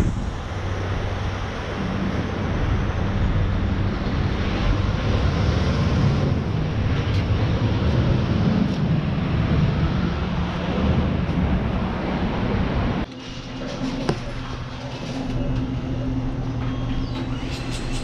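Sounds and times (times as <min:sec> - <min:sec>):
road and wind noise: 0:00.0 - 0:13.4
vehicle engine drone: 0:00.0 - 0:18.0.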